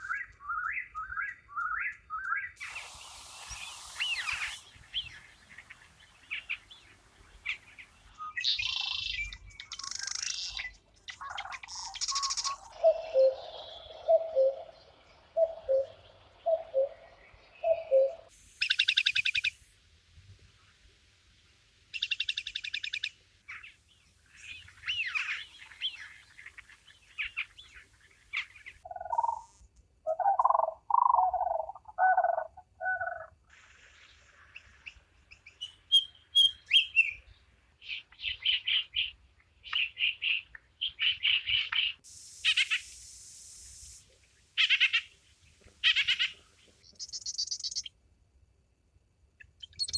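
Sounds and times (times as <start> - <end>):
birds calling and singing: 0.0 - 19.5, 22.0 - 33.3, 44.6 - 47.9, 49.4 - 49.9.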